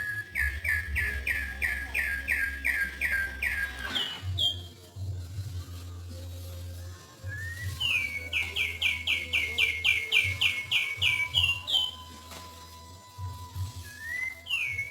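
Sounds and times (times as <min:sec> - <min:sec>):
songbird calling: 0:00.0 - 0:04.7, 0:07.8 - 0:12.1.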